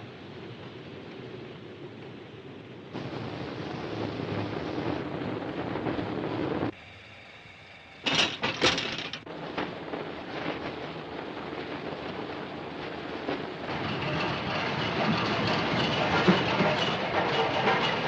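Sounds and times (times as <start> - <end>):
steam train rumbling: 0.0 - 18.0.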